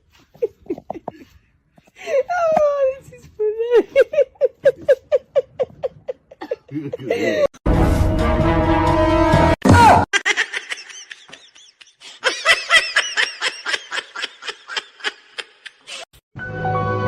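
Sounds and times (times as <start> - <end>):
person laughing hard: 0.4 - 1.3, 3.7 - 7.6, 10.2 - 16.1
music: 7.7 - 9.6, 16.4 - 17.0.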